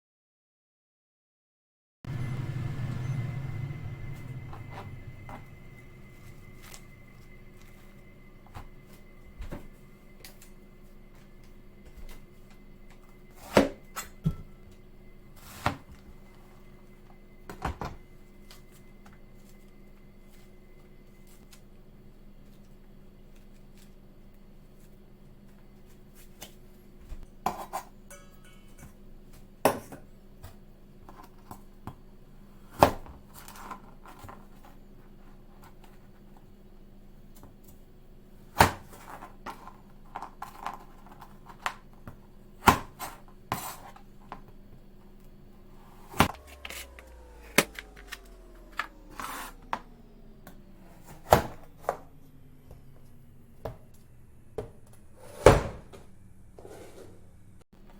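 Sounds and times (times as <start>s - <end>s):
electric motor hum: 2.1s - 14.0s, 45.7s - 57.6s
utensils and dishes clinking: 27.5s - 29.3s.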